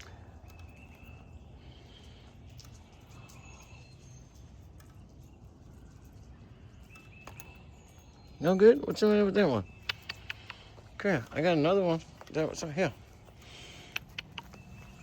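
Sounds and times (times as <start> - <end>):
faint bird calls: 0.0 - 15.0
faint ticks: 1.7 - 6.2, 8.9 - 11.4.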